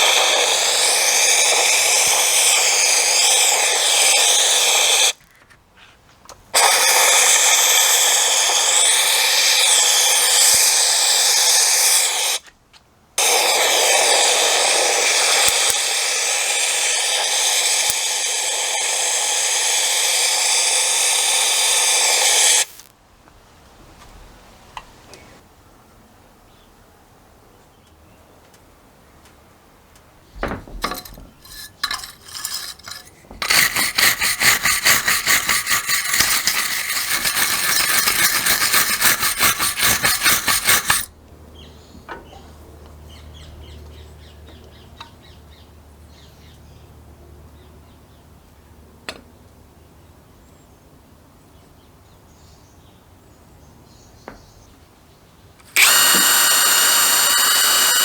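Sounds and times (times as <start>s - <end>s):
power tool whine: 0.0s - 5.2s, 6.6s - 12.4s, 13.2s - 22.9s, 30.4s - 41.1s, 55.6s - 58.0s
metal parts clinking: 30.4s - 41.1s
metallic rattling and scraping: 30.4s - 41.1s.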